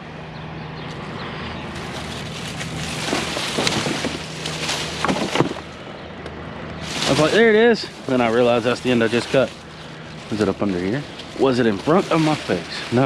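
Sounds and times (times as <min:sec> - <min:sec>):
low engine hum: 0:00.0 - 0:13.0
rustling: 0:01.7 - 0:05.8, 0:06.8 - 0:13.0.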